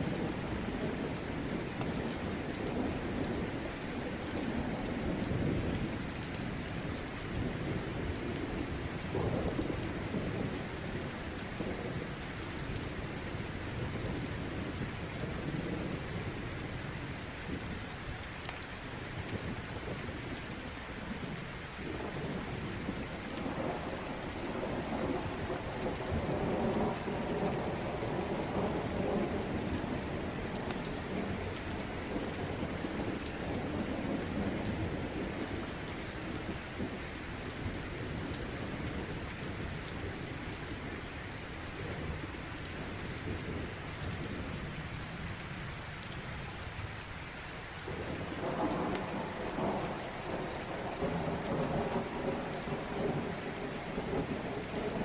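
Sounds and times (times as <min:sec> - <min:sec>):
steady rain: 0:00.0 - 0:55.0
low rolling thunder: 0:21.9 - 0:37.0, 0:47.8 - 0:55.0.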